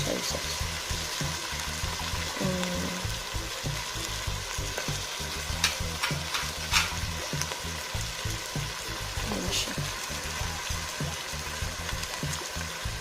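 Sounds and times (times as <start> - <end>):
chicken sizzling in oil: 0.0 - 13.0
utensil clicking against pan: 5.5 - 7.6.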